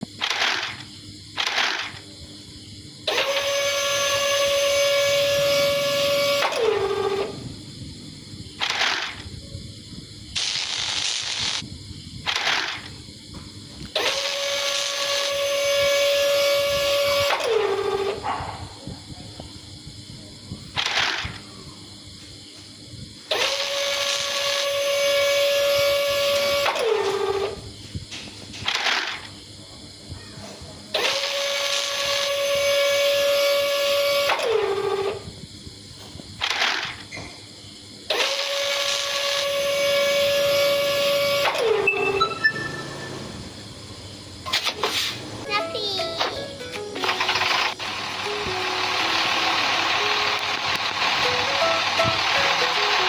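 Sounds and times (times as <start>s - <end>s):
short noisy bursts: 0.0s - 2.1s, 3.0s - 7.5s, 8.5s - 9.4s, 10.3s - 13.0s, 13.8s - 18.4s, 23.2s - 28.0s, 30.9s - 35.3s, 36.4s - 37.1s, 38.0s - 53.0s
small electric motor whining: 3.0s - 7.5s, 13.8s - 18.2s, 23.3s - 27.6s, 30.9s - 35.3s, 38.1s - 43.6s.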